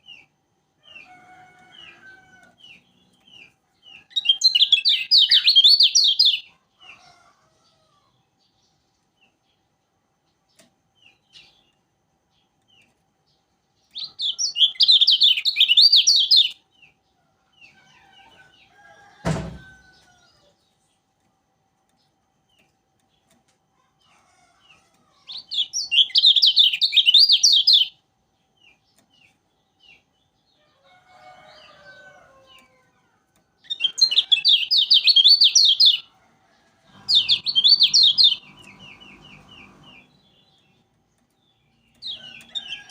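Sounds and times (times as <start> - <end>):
bird chattering chirps: 2.8 - 6.5, 13.9 - 16.6, 25.2 - 27.9, 33.6 - 36.1, 37.0 - 40.3
sharp knock: 19.2 - 19.6.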